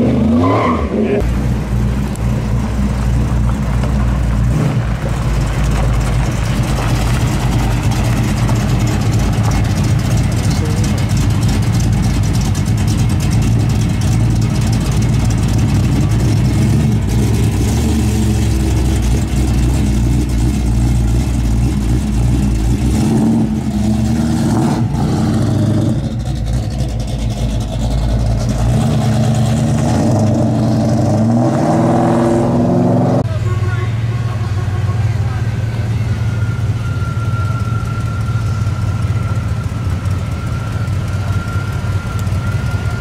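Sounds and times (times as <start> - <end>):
car accelerating away: 0.0 - 33.3
car engine idling loudly: 1.2 - 25.0, 25.6 - 29.4, 35.0 - 43.0.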